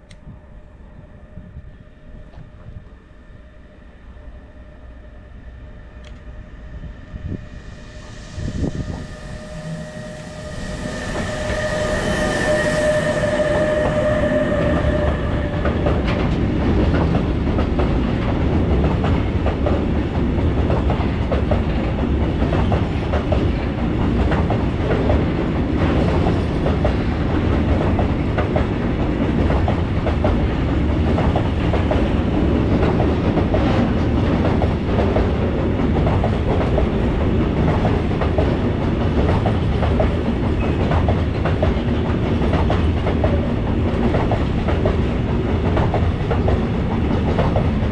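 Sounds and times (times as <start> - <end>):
locomotive whine: 0.0 - 19.4
freight train wheels clattering: 7.6 - 47.9.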